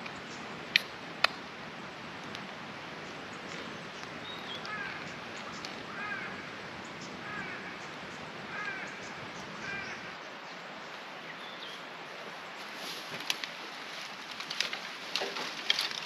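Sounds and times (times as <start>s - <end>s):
campfire crackling: 0.0s - 11.2s, 11.8s - 16.0s
background hiss: 0.0s - 16.0s
bird calling: 3.0s - 10.4s.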